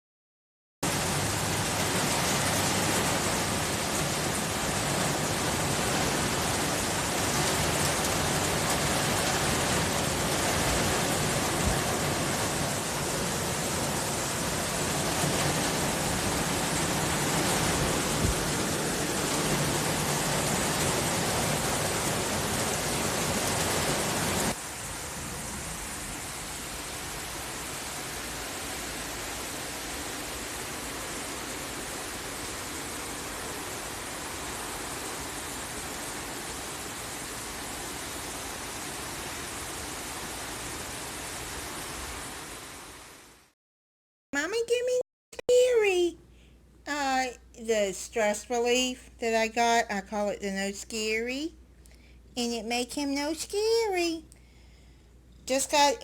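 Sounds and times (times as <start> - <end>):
heavy rain pouring: 0.8 - 43.5.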